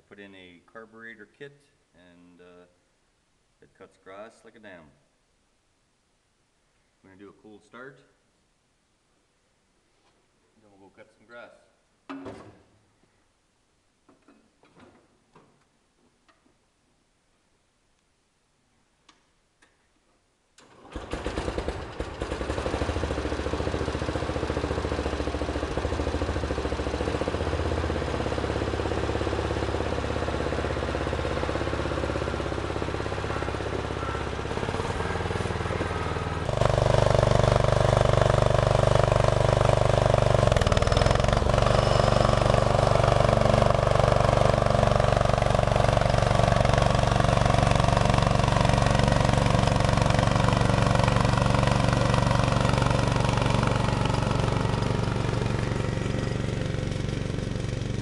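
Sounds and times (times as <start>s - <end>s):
lawn tractor engine cranking and running: 20.6s - 58.0s.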